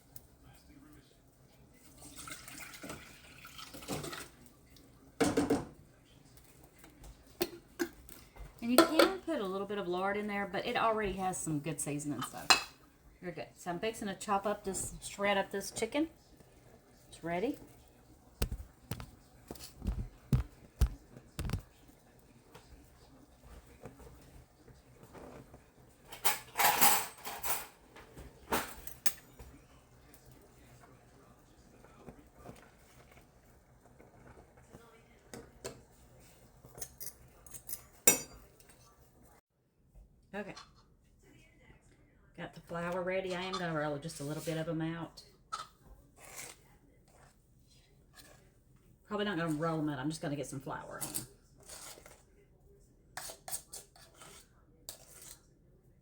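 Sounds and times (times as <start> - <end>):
liquid pouring into a pot: 1.7 - 5.7
utensils scraping against a dish: 25.0 - 27.8, 43.2 - 44.7, 45.5 - 47.4, 51.0 - 52.2, 53.2 - 55.5.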